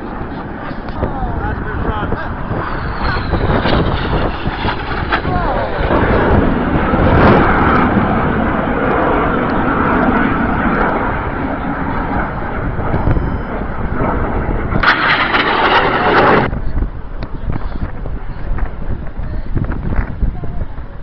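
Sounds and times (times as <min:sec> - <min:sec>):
jets flying past roaring: 0:00.0 - 0:21.0
burst of rushing noise: 0:01.9 - 0:08.6, 0:14.4 - 0:16.5.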